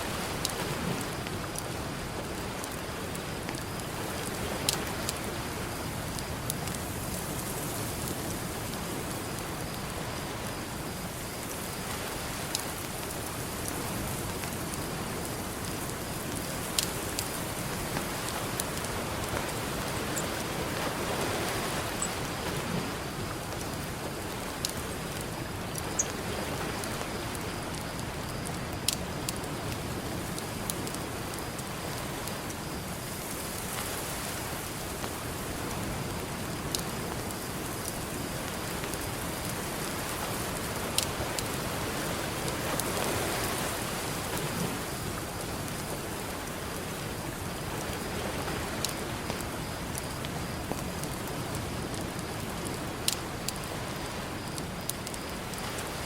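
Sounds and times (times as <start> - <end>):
campfire crackling: 0.0 - 56.0
ocean surf: 11.4 - 25.3.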